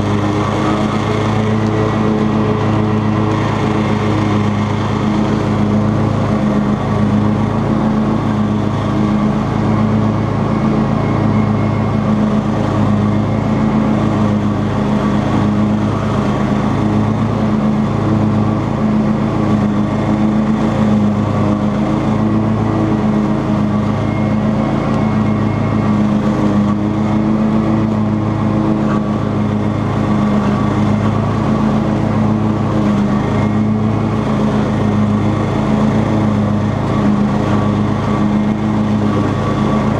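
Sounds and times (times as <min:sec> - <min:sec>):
riding lawn mower engine: 0:00.0 - 0:39.9.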